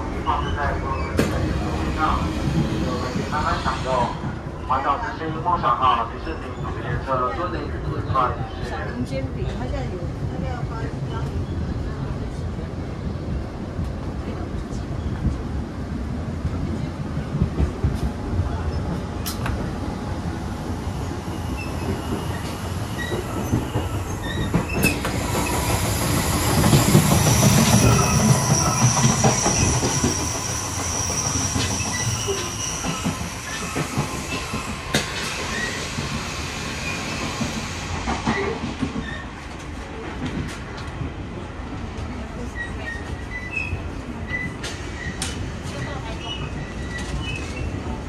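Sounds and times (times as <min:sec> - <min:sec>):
train rumbling on rails: 0:00.0 - 0:48.0
high-pitched wheel squeal: 0:27.7 - 0:34.7.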